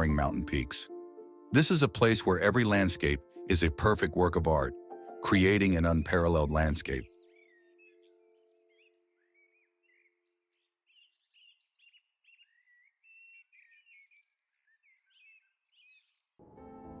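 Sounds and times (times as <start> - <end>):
faint birdsong: 5.4 - 16.4.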